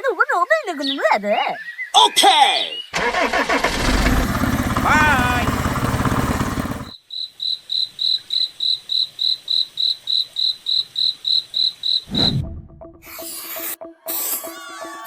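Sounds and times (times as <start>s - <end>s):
cricket chirping: 6.9s - 12.1s.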